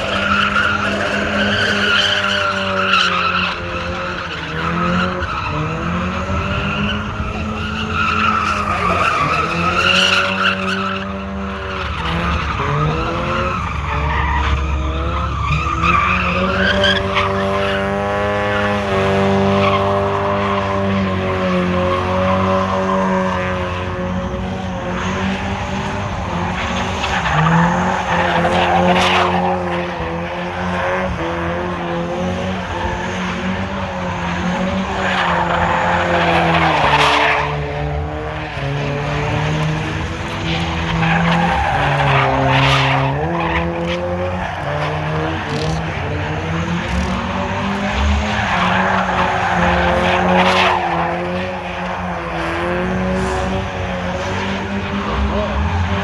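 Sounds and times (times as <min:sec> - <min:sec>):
car engine running hard: 0:00.0 - 0:56.0
tyres squealing: 0:38.4 - 0:52.4.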